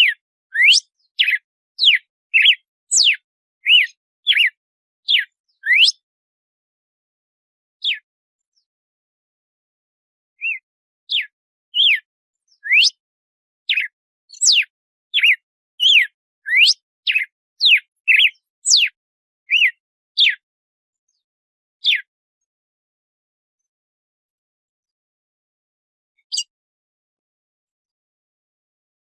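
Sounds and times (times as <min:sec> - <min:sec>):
bird singing whistled notes: 0:00.0 - 0:06.1, 0:07.8 - 0:08.7, 0:10.4 - 0:13.0, 0:13.7 - 0:20.4, 0:21.8 - 0:22.1, 0:26.2 - 0:26.6.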